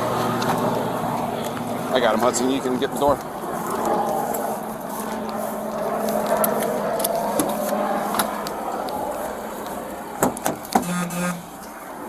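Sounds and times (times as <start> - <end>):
rustling and movement: 0.0 - 11.9
brief low buzz: 10.8 - 11.5.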